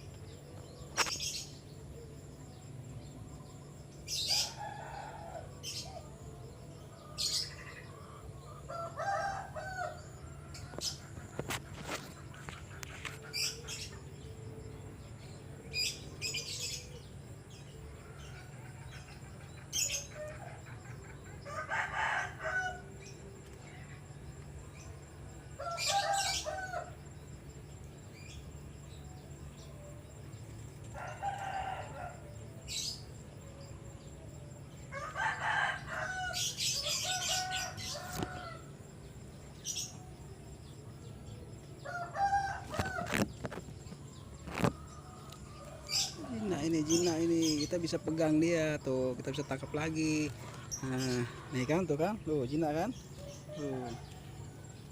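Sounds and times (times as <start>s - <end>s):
chickens clucking and crowing: 0.4s - 54.9s.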